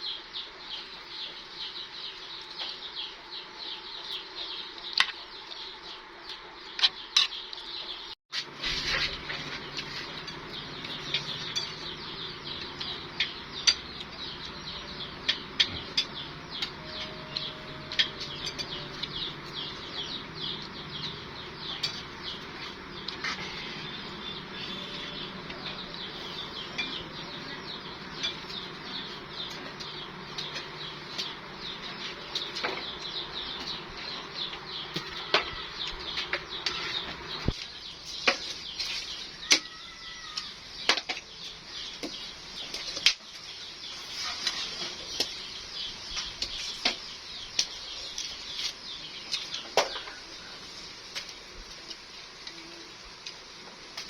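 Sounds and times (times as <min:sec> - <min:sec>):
low steady hum: 0:00.0 - 0:39.3
small birds chirping: 0:00.0 - 0:54.0
utensils clinking on dishes: 0:08.7 - 0:12.0, 0:15.2 - 0:19.6.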